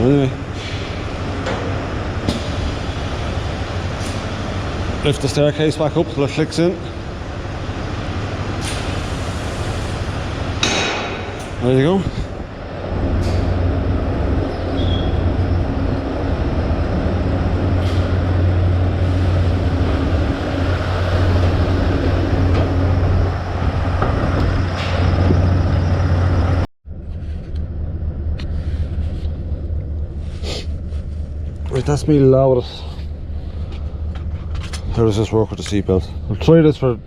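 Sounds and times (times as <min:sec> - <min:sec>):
diesel truck engine idling: 0:00.0 - 0:26.7.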